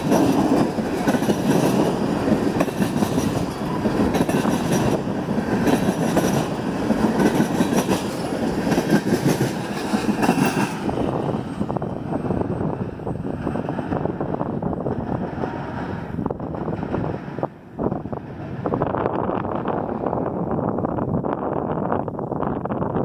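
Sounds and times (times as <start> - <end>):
clicking over rail joints: 0.0 - 10.8
steel wheels rumbling on rail: 0.0 - 23.0.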